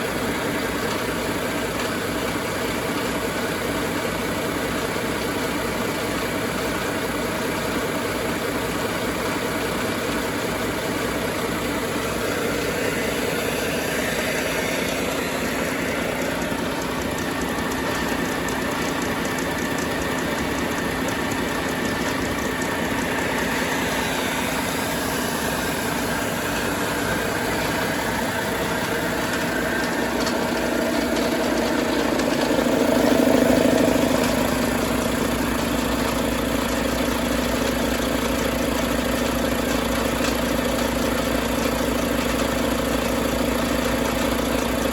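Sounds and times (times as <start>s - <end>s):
diesel engine idling: 0.0s - 44.9s
high whine: 12.1s - 36.6s.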